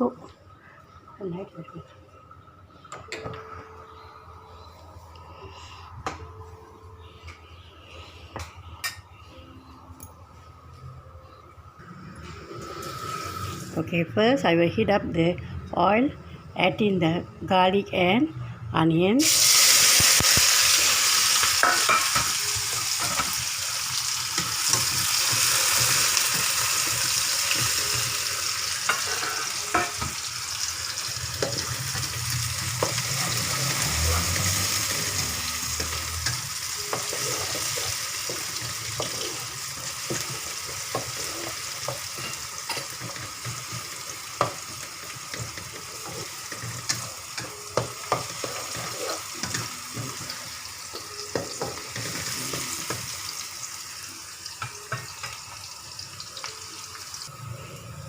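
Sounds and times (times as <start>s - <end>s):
garlic and onion sizzling in oil: 12.6s - 13.8s, 19.2s - 57.3s.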